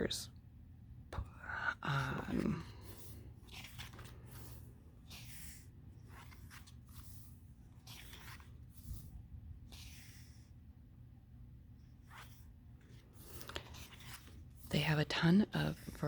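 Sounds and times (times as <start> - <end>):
pages turning: 2.0 - 10.4, 11.9 - 14.7.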